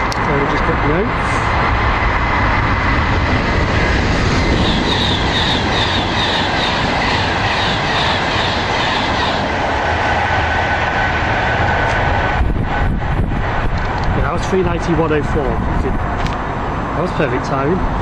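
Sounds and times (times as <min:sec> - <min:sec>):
electric train passing: 0:00.0 - 0:18.0.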